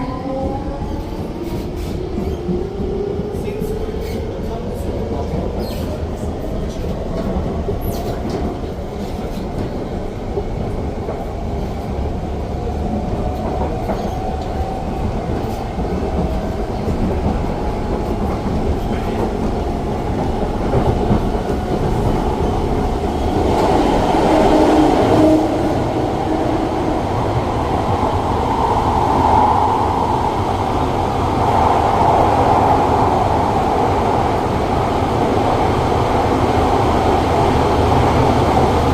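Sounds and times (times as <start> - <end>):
wheels rumbling on rail: 0.0 - 38.9
clickety-clack over rail joints: 0.9 - 24.1.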